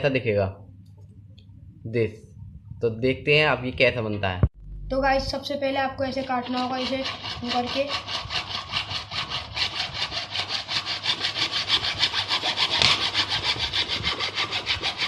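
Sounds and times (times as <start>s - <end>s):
sawing plastic bottle: 6.1s - 15.0s.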